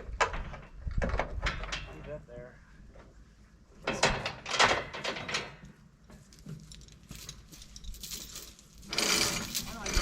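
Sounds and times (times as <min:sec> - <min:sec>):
metal chain links clinking: 0:06.6 - 0:10.0.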